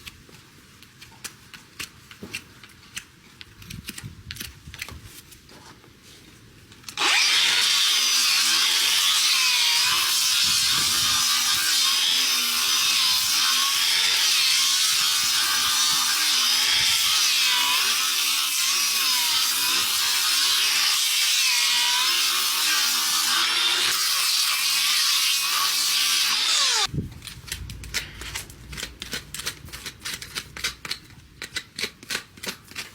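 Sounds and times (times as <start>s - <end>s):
power tool grinding hoof: 7.0s - 26.9s.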